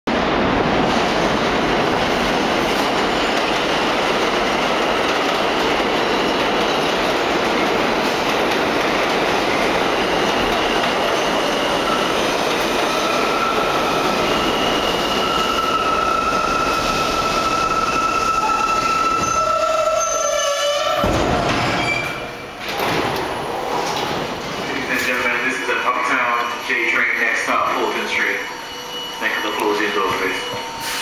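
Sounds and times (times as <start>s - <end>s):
subway train clattering on rails: 0.1s - 31.0s
high-pitched wheel squeal: 12.9s - 21.1s, 28.2s - 31.0s.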